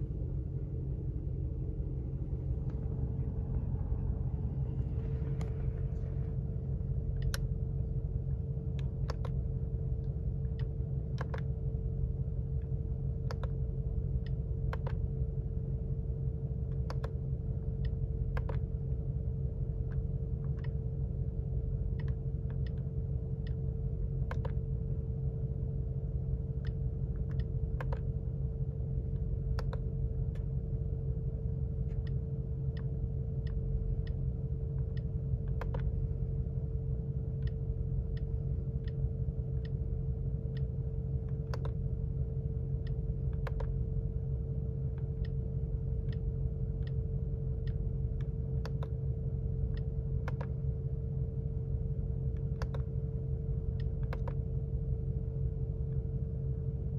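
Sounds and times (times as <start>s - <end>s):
car engine idling: 0.0s - 7.3s
faint cabin hum: 0.0s - 56.9s
light clicks: 24.2s - 24.6s, 29.2s - 30.5s, 40.4s - 41.8s, 42.7s - 43.8s, 49.7s - 50.7s, 52.3s - 53.0s, 53.8s - 54.4s.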